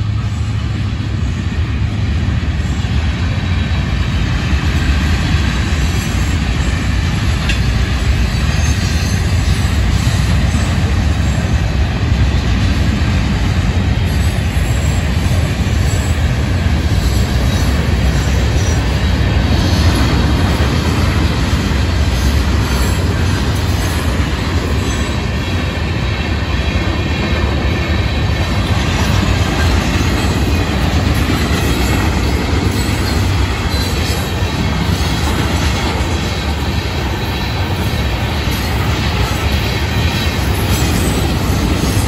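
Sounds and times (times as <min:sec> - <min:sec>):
freight train rumbling on rails: 0:00.0 - 0:42.0.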